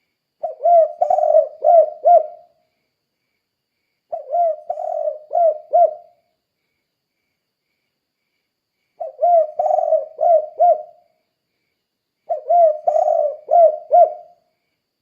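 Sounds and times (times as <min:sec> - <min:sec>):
dove cooing: 0:00.4 - 0:02.5, 0:04.1 - 0:06.2, 0:09.0 - 0:11.0, 0:12.3 - 0:14.4.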